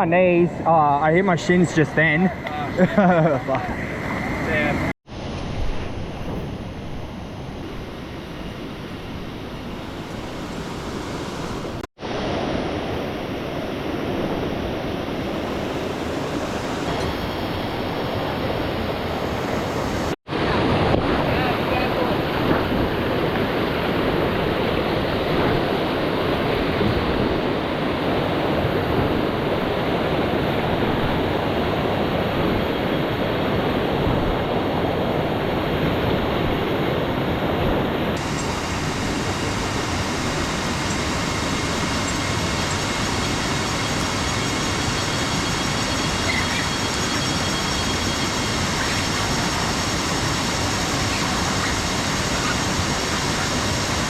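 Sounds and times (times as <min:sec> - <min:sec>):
waterfall rushing: 0:38.2 - 0:54.0.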